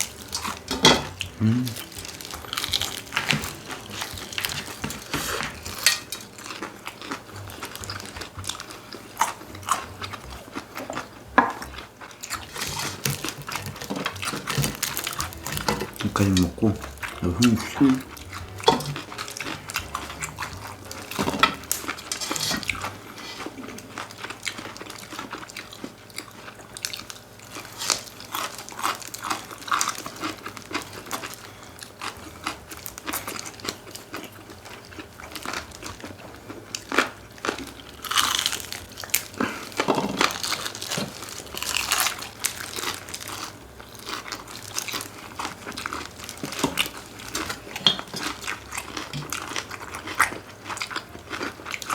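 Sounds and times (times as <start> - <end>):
chewing and crunching chicken: 0.0 - 51.9.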